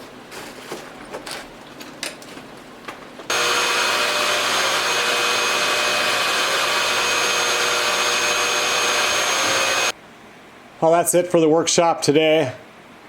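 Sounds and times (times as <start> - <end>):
shop vacuum running: 3.3 - 10.0.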